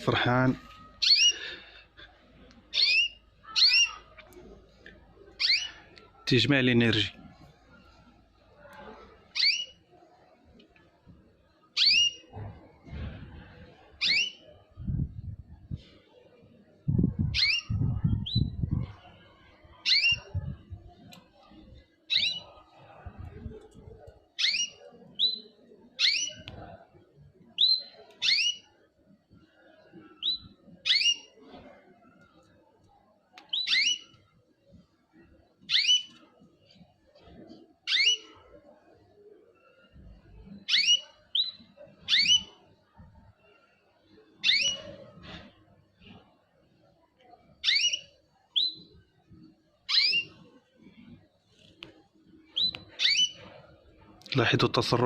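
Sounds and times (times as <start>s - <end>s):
small birds calling: 0.8s - 1.7s, 2.7s - 4.2s, 5.4s - 6.0s, 9.3s - 9.8s, 52.5s - 53.4s.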